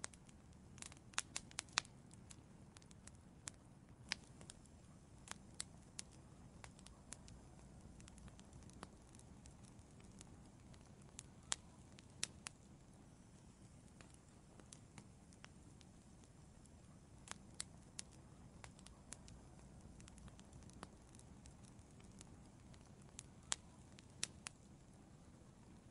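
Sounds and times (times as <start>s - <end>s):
low steady hiss: 0.0s - 25.9s
wood fire crackling and popping: 0.0s - 25.9s.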